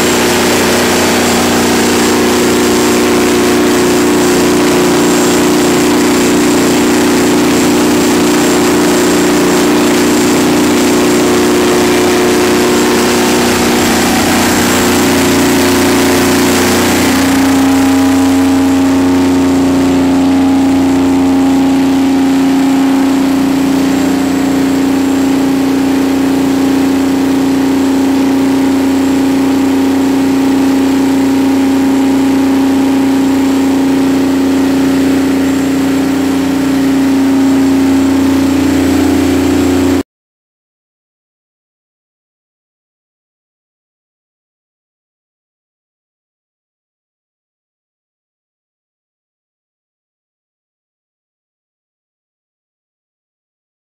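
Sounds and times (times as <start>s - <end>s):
diesel generator engine running: 0.0s - 40.0s.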